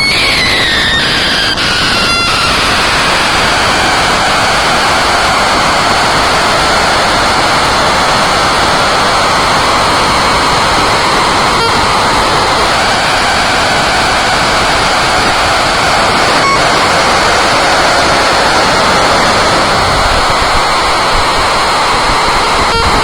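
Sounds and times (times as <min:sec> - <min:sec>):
falling tone: 0:00.0 - 0:07.7
loud static-like rushing noise: 0:00.0 - 0:23.0.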